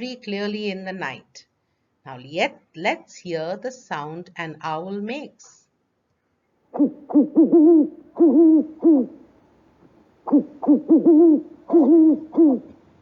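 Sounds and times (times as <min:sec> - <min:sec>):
owl hooting: 0:06.7 - 0:09.3, 0:10.2 - 0:12.8.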